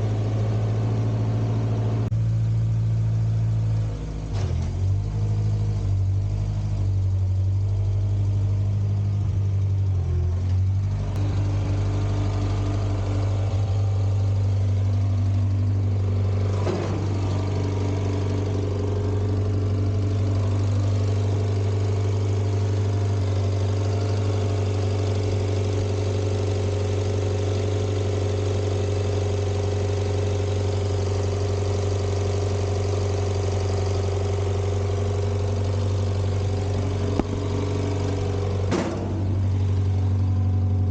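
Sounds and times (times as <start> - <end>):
gasoline engine running: 0.0 - 40.9.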